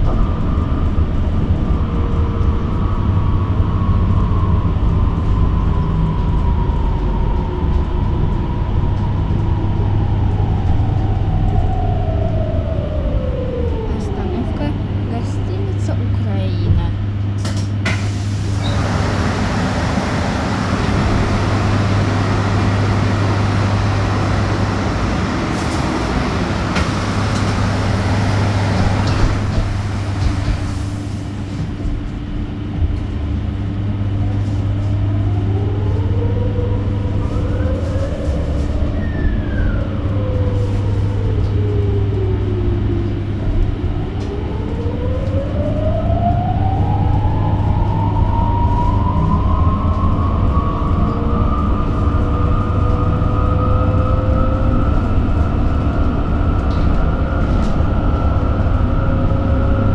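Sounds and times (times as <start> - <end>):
road noise inside bus: 0.0 - 59.9.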